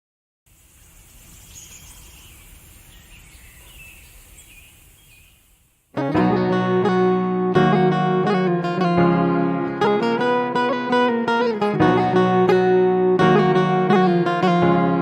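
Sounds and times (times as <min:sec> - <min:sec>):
birds chirping: 0:00.6 - 0:05.9
acoustic guitar music: 0:05.9 - 0:15.0.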